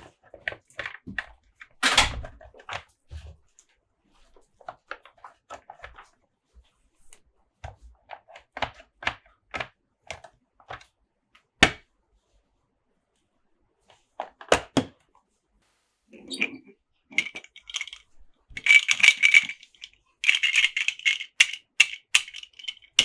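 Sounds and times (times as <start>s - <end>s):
plastic toy parts clicking: 17.1s - 23.0s
plastic toy parts knocking: 17.2s - 23.0s.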